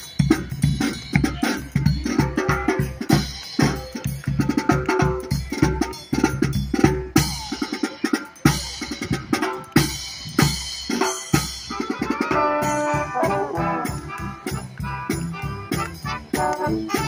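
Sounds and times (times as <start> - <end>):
marching band drums: 0.0 - 17.0
brass held chords: 11.6 - 17.0.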